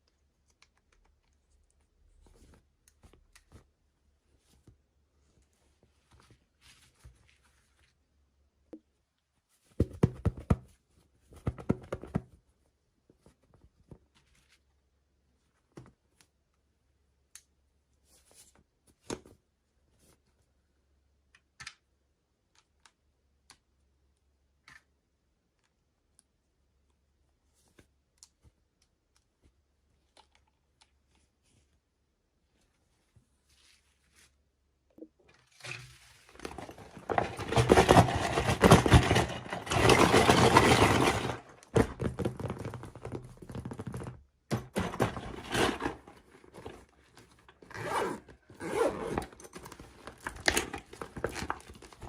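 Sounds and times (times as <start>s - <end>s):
clicking and rattling: 36.4s - 47.6s.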